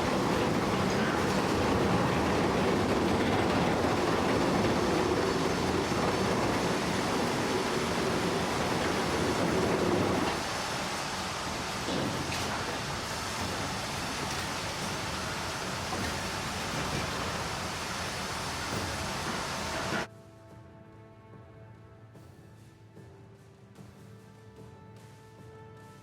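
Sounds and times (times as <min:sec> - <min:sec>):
heavy vehicle rumble: 0:00.0 - 0:20.1.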